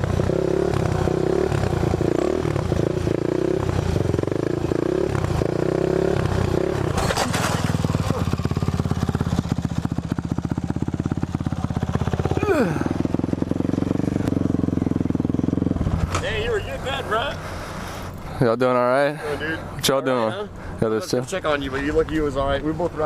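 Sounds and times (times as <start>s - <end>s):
dirt bike engine revving: 0.0s - 16.3s.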